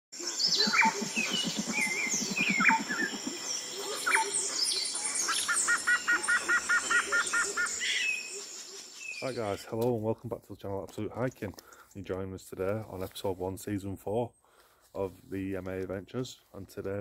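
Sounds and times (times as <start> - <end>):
birds singing and calling: 0.2 - 10.0.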